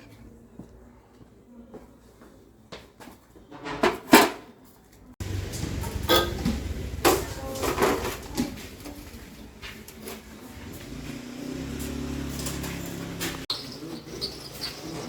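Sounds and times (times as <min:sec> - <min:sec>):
steady low hum: 0:05.2 - 0:11.7.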